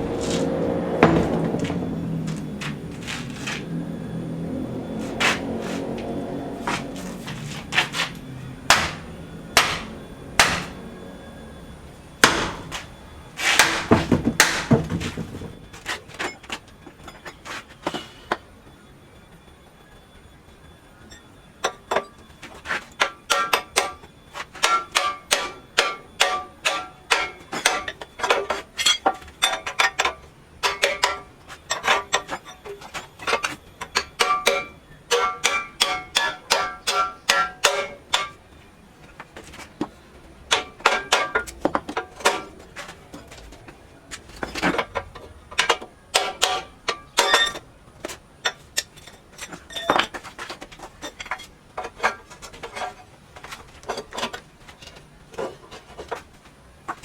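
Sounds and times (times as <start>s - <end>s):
hammer striking metal: 0.1s - 3.6s, 5.1s - 11.1s, 12.2s - 15.3s, 23.0s - 38.5s, 40.5s - 42.7s, 44.5s - 47.6s.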